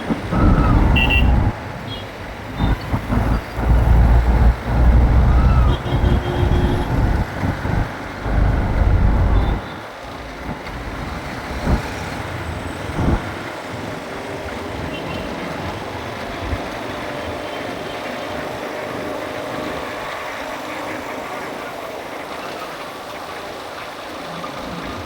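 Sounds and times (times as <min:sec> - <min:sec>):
motorbike and road traffic: 0:00.0 - 0:22.4
low thumps: 0:00.1 - 0:01.6, 0:02.6 - 0:09.6, 0:13.0 - 0:13.2.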